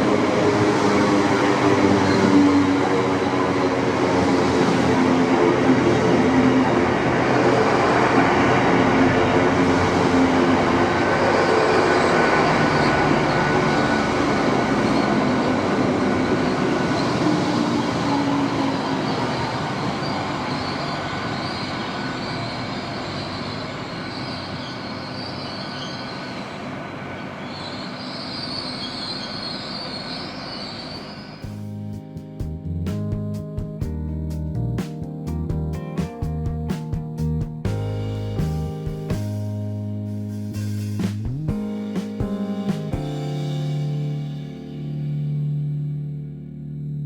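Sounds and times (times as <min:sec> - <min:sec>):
high-pitched rail squeal: 0:00.0 - 0:31.6
passenger train running: 0:00.0 - 0:31.6.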